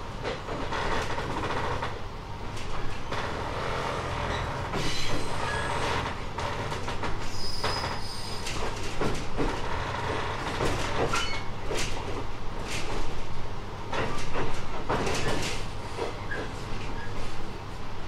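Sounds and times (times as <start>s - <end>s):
train running rumble: 0.0s - 18.0s
wheel clacks over rail joints: 0.2s - 13.2s, 13.9s - 17.1s
high wheel squeal: 4.2s - 6.0s, 7.2s - 8.4s.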